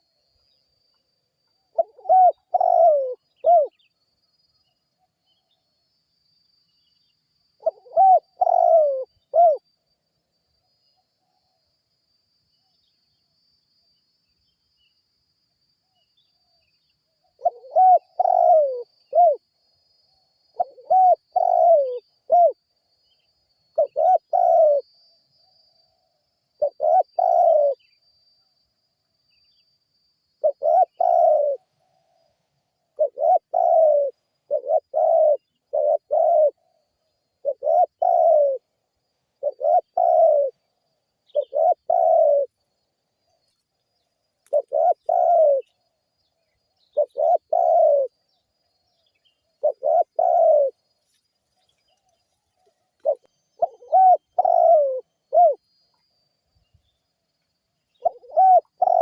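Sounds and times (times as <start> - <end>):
dove cooing: 1.7 - 3.8, 7.6 - 9.6, 17.4 - 19.4, 20.5 - 22.6, 23.7 - 24.8, 26.6 - 27.8, 30.4 - 32.2, 33.0 - 38.7, 39.4 - 40.6, 41.3 - 42.5, 44.5 - 45.7, 46.8 - 48.1, 49.6 - 50.8, 53.0 - 55.6, 58.0 - 59.0.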